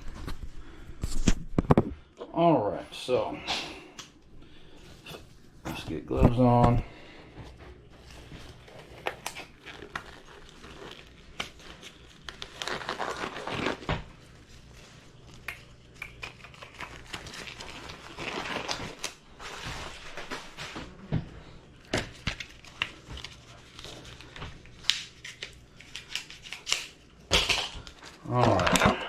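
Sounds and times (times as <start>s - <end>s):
plastic gloves crinkling: 7.8s - 29.0s.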